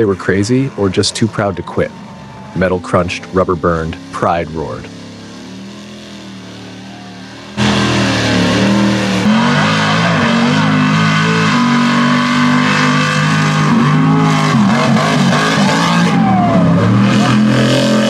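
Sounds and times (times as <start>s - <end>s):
truck engines revving hard: 0.0s - 18.0s
quieter engine sound: 0.6s - 11.4s.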